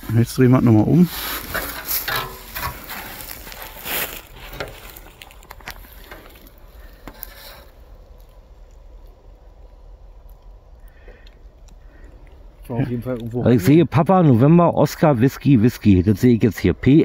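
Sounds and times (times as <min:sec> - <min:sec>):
sign scraping and rustling: 0:00.0 - 0:08.4.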